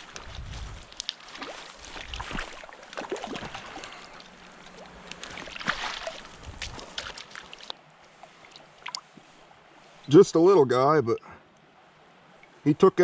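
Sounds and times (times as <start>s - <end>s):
stream water splashing: 0.0s - 10.1s.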